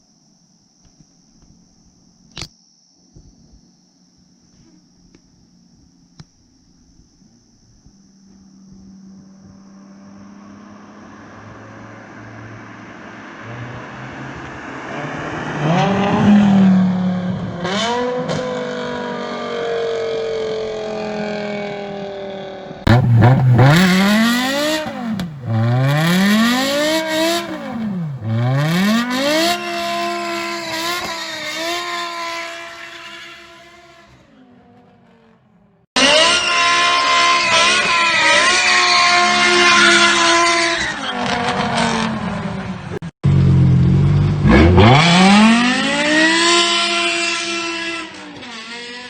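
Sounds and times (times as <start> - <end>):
car engine revving: 9.4 - 35.4, 36.0 - 49.0.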